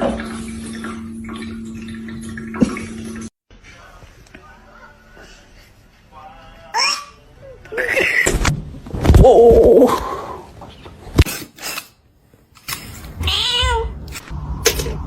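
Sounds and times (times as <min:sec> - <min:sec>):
cat meowing: 0:13.2 - 0:14.0.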